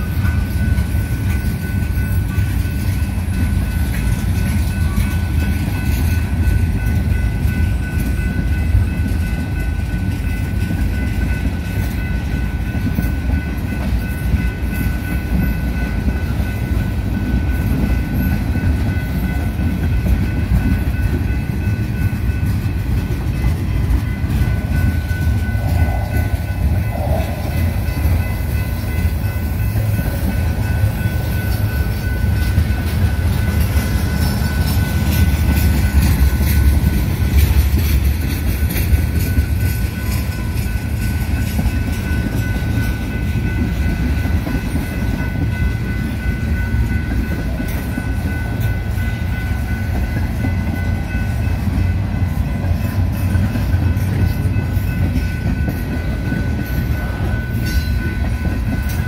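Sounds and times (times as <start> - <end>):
train rumbling on rails: 0.0 - 59.0.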